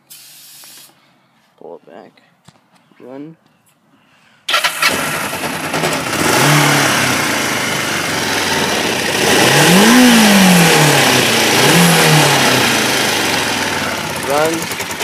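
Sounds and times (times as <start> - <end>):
motorcycle engine revving: 4.5 - 15.0.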